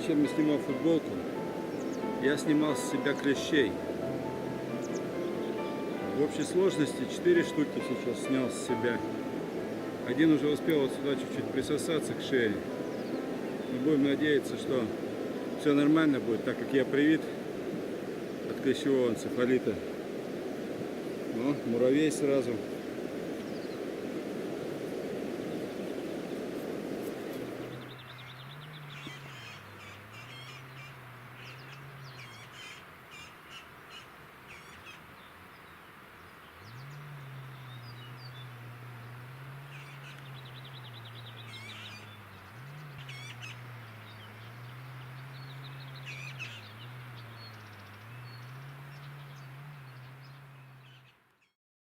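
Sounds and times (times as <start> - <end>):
birds chirping and calling: 0.0 - 19.7, 21.4 - 24.0, 27.2 - 35.7, 36.3 - 51.2
low rushing noise: 0.0 - 28.9.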